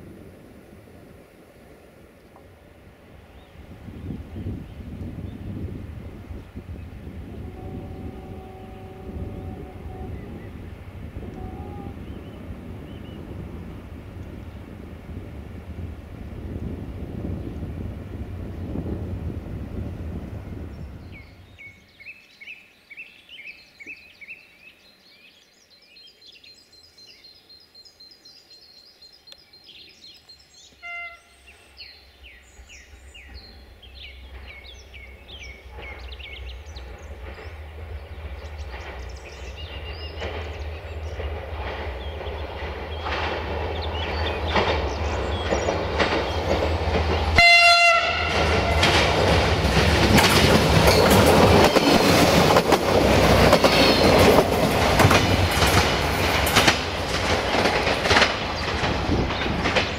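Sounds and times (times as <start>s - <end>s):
train rumbling in a tunnel: 0.0s - 25.2s, 25.8s - 59.9s
birds chirping: 3.0s - 15.8s, 16.9s - 59.9s
train horn blast: 7.1s - 12.4s, 30.8s - 31.6s, 47.4s - 49.2s.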